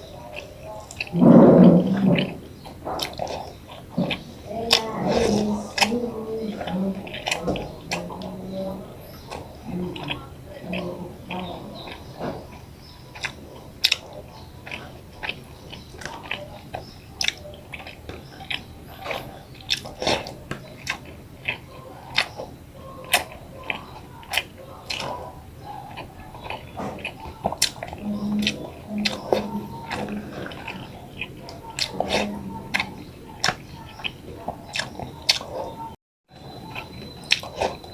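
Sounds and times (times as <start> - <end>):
mouth clicks and smacks: 0.0 - 37.9
person chewing food: 0.0 - 37.9.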